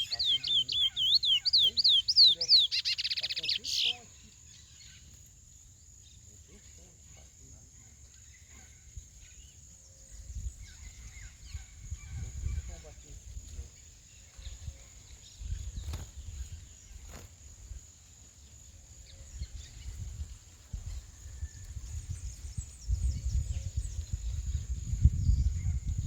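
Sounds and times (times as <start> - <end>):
faint high bird chirps: 0.0 - 5.2
wind buffeting microphone: 10.1 - 13.7, 14.3 - 17.1, 19.2 - 26.0.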